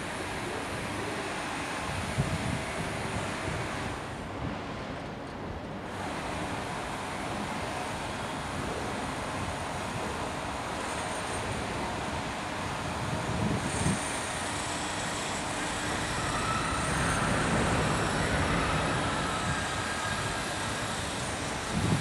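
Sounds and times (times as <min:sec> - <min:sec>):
train rumble and hiss: 0:00.0 - 0:22.0
faint whine: 0:07.7 - 0:22.0.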